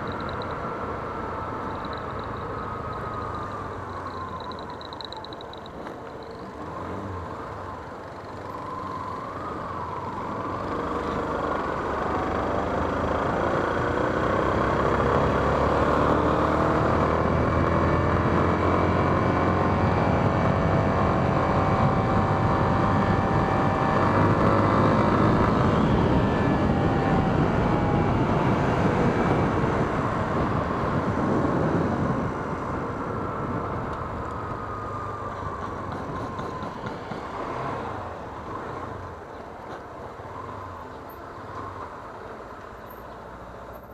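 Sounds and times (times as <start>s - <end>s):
motorcycle engine while riding: 0.0s - 43.9s
wind noise: 16.5s - 37.2s.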